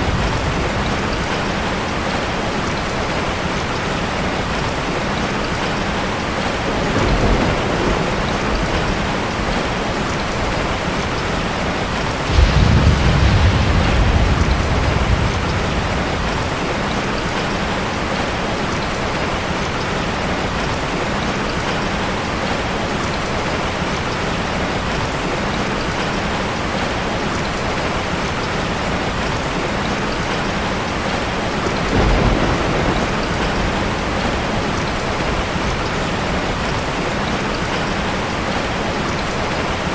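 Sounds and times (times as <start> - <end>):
thunder rumbling: 0.0 - 19.7, 30.2 - 39.1
heavy rain falling: 0.0 - 39.9.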